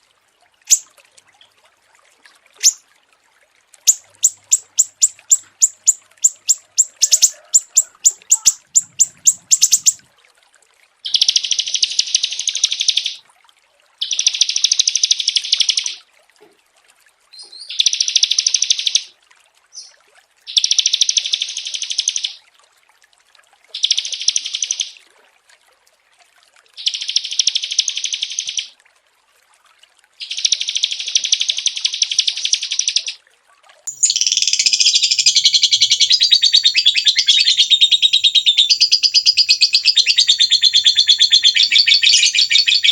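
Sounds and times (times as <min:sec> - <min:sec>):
songbird chirping and trilling: 0:00.7 - 0:00.9, 0:02.6 - 0:02.8, 0:03.9 - 0:10.0, 0:11.1 - 0:13.2, 0:30.2 - 0:33.2, 0:33.9 - 0:42.9.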